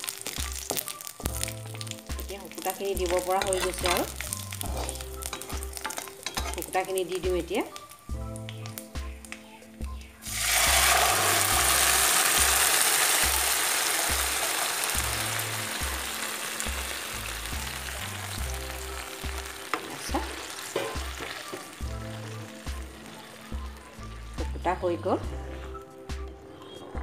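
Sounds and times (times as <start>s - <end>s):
loud sizzle of paste in hot oil: 0.0s - 9.1s, 10.1s - 24.7s
spatula scraping: 3.4s - 6.7s.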